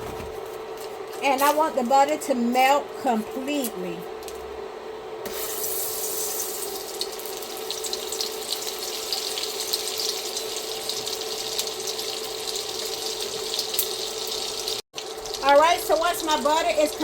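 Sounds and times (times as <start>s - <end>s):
butter sizzling in frying pan: 5.3s - 17.0s.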